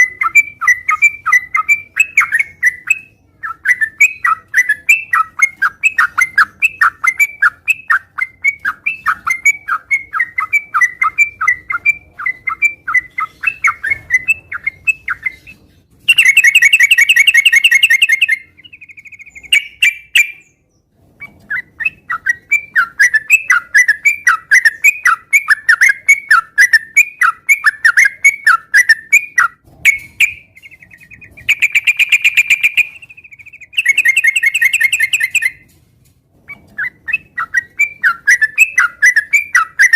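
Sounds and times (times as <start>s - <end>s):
buzzy bird trills: 0.0s - 20.6s, 21.2s - 35.6s
bird chirping: 0.0s - 35.8s, 36.4s - 39.9s.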